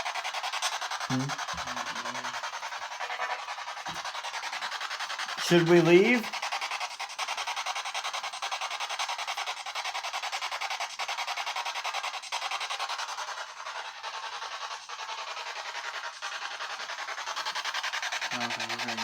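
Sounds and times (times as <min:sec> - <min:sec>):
pulsing static hiss: 0:01.1 - 0:03.7.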